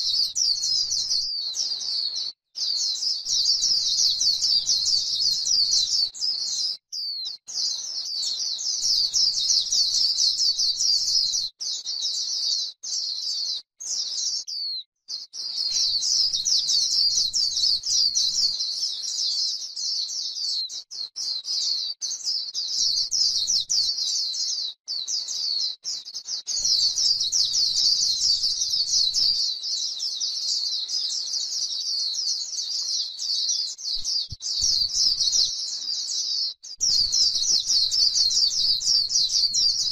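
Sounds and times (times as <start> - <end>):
bird twittering warble: 33.9 - 36.2, 36.8 - 39.9.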